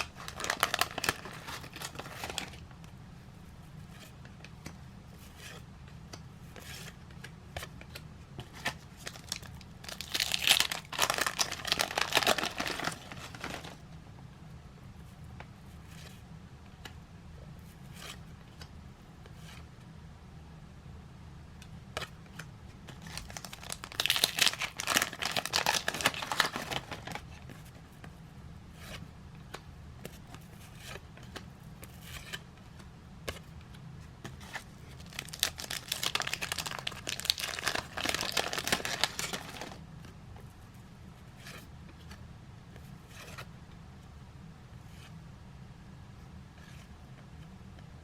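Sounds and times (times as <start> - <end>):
card pack wrappers crinkling and tearing: 0.0 - 2.6, 8.6 - 13.8, 22.9 - 27.2, 34.4 - 39.8.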